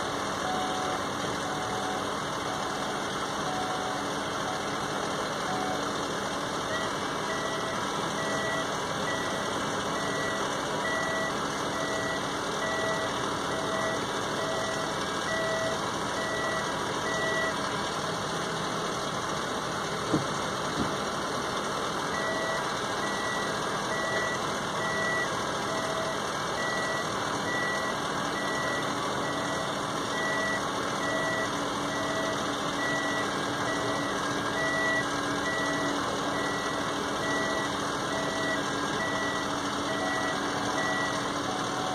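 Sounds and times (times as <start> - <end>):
electronic warning beeper: 6.7 - 17.6, 22.2 - 41.9.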